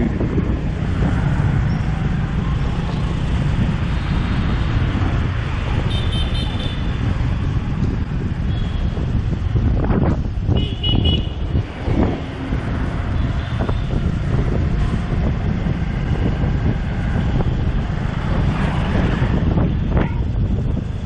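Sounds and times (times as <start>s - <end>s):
motorbike and car traffic: 0.0s - 21.0s
wind buffeting microphone: 0.0s - 21.0s
vehicle horn beep: 5.9s - 6.9s, 8.5s - 9.0s, 10.5s - 11.4s.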